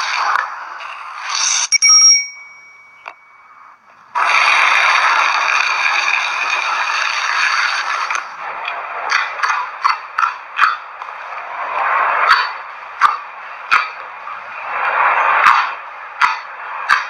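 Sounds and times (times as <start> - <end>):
bell-like ding: 1.7 - 3.5.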